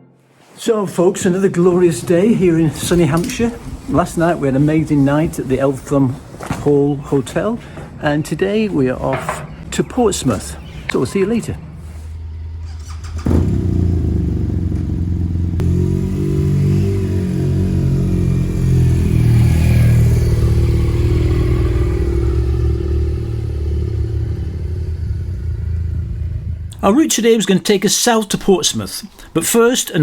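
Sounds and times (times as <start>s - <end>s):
motorcycle engine accelerating: 11.7s - 26.7s.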